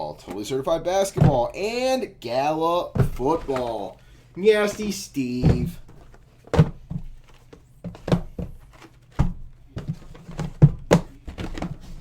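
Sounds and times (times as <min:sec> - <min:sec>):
boxes thudding when set down: 0:01.0 - 0:01.6, 0:02.9 - 0:03.9, 0:04.6 - 0:12.0.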